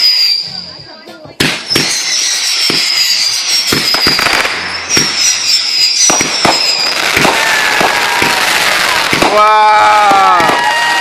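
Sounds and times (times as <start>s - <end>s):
firework whistles sliding down: 0.0s - 0.7s, 1.6s - 9.3s
firework bangs and crackles: 0.0s - 11.0s.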